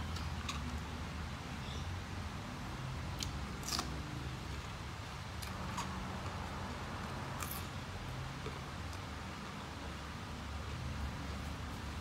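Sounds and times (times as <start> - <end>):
low steady hum: 0.0 - 12.0
chewing crisp raw vegetables: 3.2 - 7.8.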